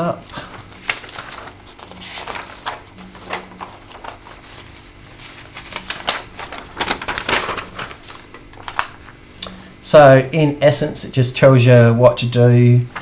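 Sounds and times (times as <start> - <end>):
paper rustling and crackling: 0.0 - 9.6, 12.8 - 13.0.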